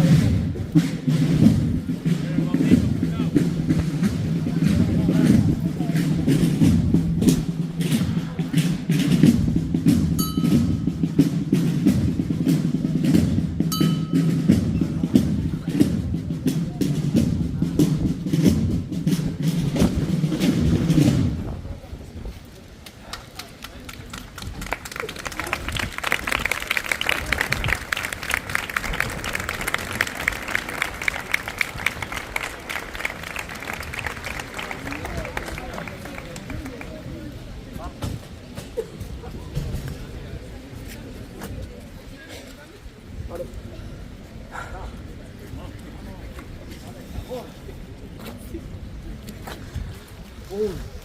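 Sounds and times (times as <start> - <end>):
drums beating slow march: 0.0 - 22.9, 24.2 - 51.0
crowd applauding: 22.8 - 37.3.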